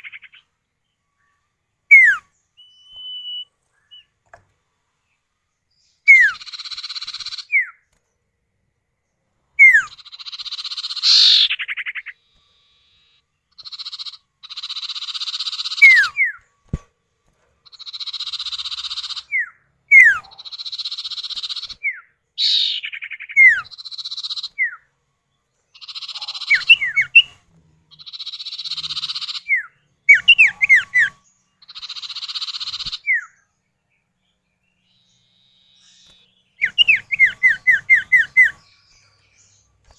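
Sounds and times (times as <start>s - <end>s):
sharp down-slurred bird whistles: 1.9s - 4.1s, 6.0s - 7.8s, 9.6s - 16.4s, 17.8s - 24.8s, 25.8s - 27.4s, 28.0s - 33.4s, 34.9s - 38.6s
raspy buzzing bird calls: 6.1s - 7.8s, 9.6s - 16.3s, 17.6s - 21.8s, 22.4s - 24.8s, 25.7s - 27.3s, 27.9s - 33.4s.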